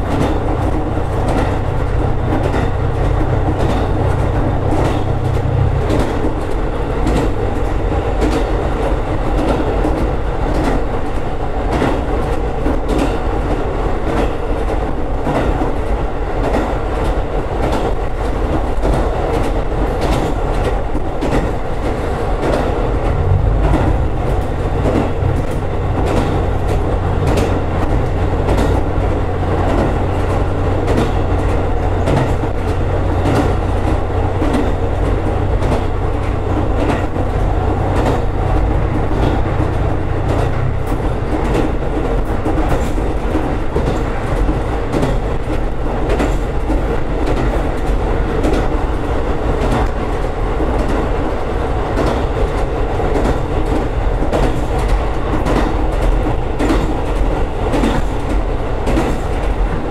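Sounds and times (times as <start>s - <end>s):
low hum: 0.0s - 8.3s, 23.0s - 43.4s
railcar engine rumble: 0.0s - 59.9s
wheels clicking over rail joints: 0.0s - 59.9s.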